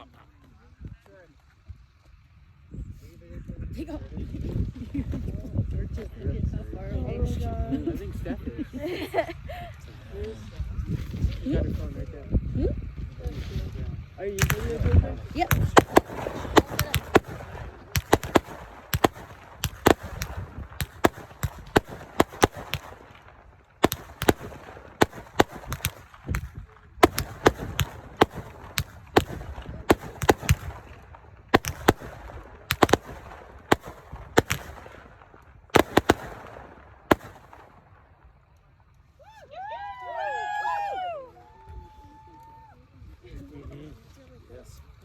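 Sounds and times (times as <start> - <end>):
fireworks bangs and crackles: 12.8 - 38.4.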